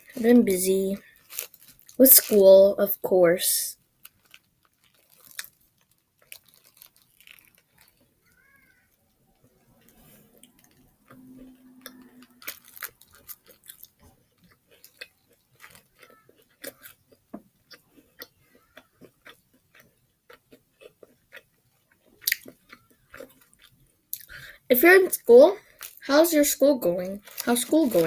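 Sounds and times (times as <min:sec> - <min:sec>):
mouth chewing noises: 0:09.3 - 0:24.6, 0:26.9 - 0:28.0.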